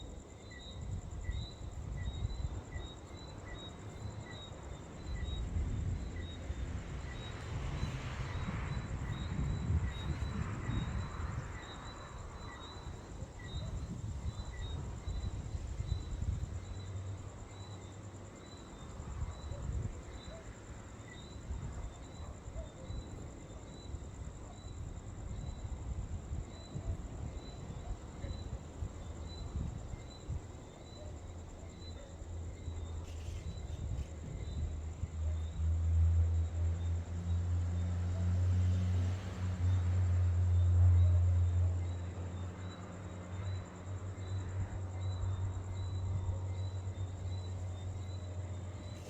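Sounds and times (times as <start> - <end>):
insects trilling: 0.0 - 37.9, 39.5 - 49.0.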